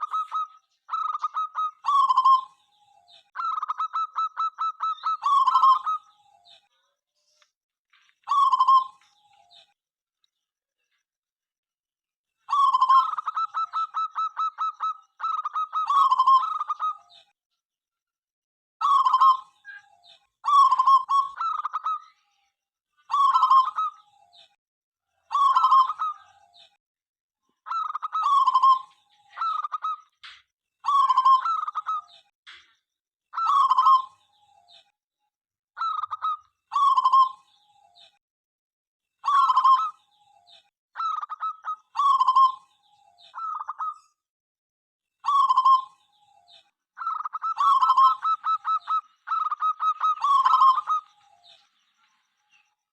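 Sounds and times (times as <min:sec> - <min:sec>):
dove cooing: 0:00.0 - 0:02.5, 0:12.5 - 0:17.0, 0:25.3 - 0:26.4, 0:27.7 - 0:30.0, 0:41.0 - 0:42.6, 0:45.2 - 0:46.0, 0:47.0 - 0:51.2.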